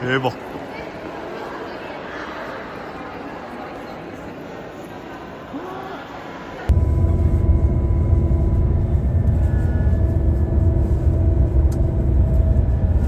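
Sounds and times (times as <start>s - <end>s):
vehicle rumble with engine hum: 6.7s - 13.0s.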